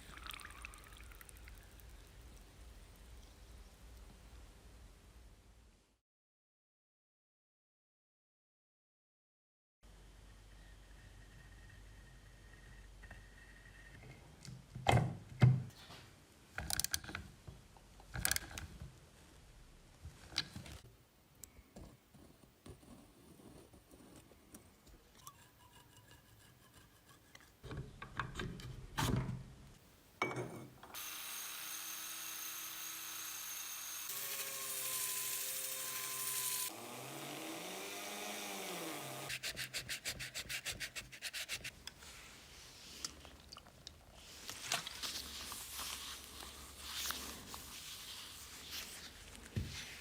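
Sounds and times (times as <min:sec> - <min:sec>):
metal tools knocking on metal: 0:30.2 - 0:30.7
power tool whirring: 0:30.9 - 0:39.3.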